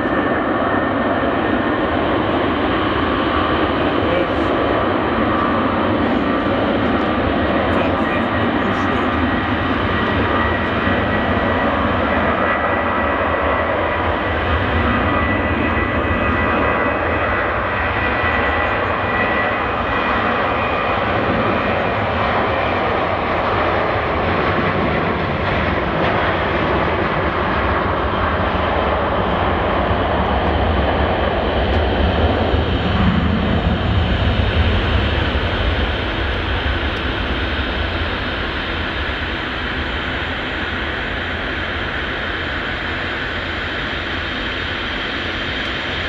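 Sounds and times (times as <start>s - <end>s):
jet engines rushing: 0.0s - 46.0s
thin jet engine whine: 0.0s - 46.0s.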